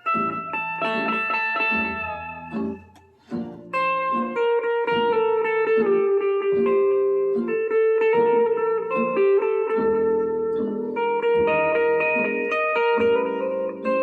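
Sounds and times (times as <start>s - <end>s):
backing track: 0.0s - 14.0s
plucked guitar notes: 0.0s - 14.0s.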